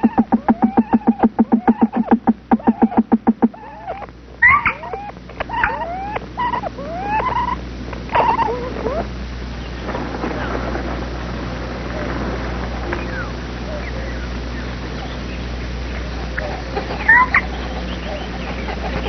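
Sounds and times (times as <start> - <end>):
nestlings whining calls: 0.0 - 9.9, 13.0 - 19.0
nestlings clucking: 0.0 - 10.1, 12.9 - 19.0.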